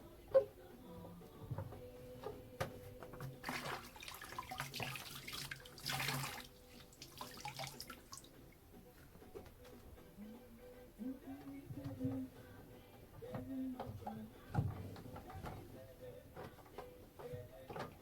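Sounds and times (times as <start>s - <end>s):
tap water running into sink: 3.2s - 8.3s.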